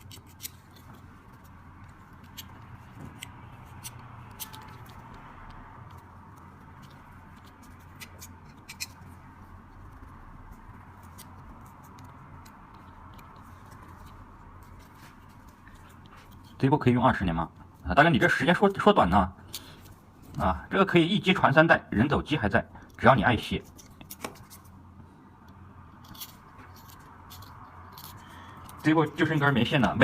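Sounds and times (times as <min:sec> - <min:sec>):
small clicks and scratching: 0:00.0 - 0:16.6, 0:25.4 - 0:30.0.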